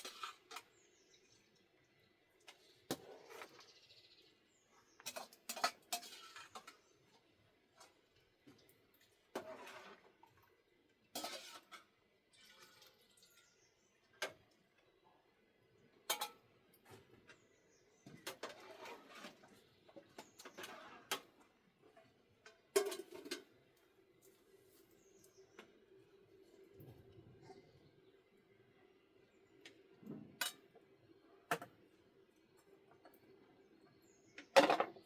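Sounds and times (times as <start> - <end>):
dishes and utensils clattering: 5.1 - 6.8, 11.2 - 11.8, 22.7 - 23.5, 34.6 - 35.0.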